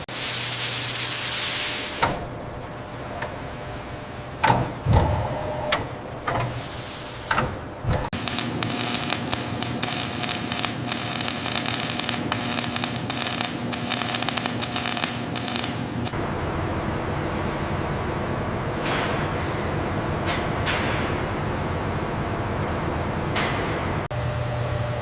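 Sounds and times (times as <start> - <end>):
harsh crackling machine noise: 7.9 - 17.2.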